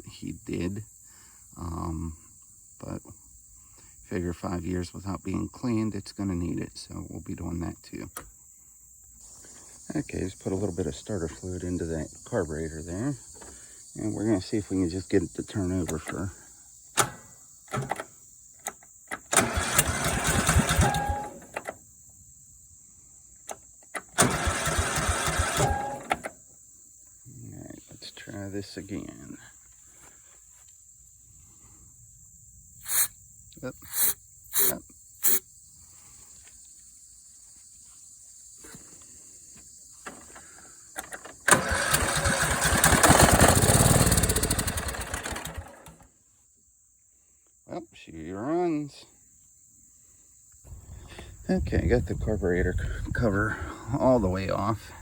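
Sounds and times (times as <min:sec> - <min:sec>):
lawn tractor engine cranking: 0:15.8 - 0:16.3, 0:17.0 - 0:21.8, 0:23.5 - 0:26.4, 0:32.8 - 0:33.1, 0:33.8 - 0:35.4, 0:40.0 - 0:46.0
starter clicks: 0:33.8 - 0:35.4.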